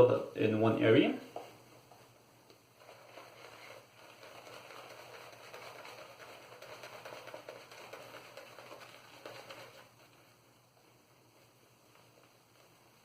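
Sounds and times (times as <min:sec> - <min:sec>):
shaving brush swishing lather: 0:02.8 - 0:10.4.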